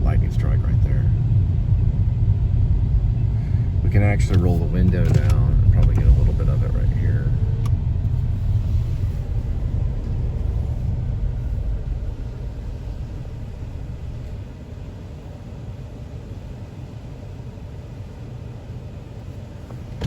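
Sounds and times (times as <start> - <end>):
wind buffeting open car window: 0.0 - 15.4
car engine rumble: 0.0 - 20.0.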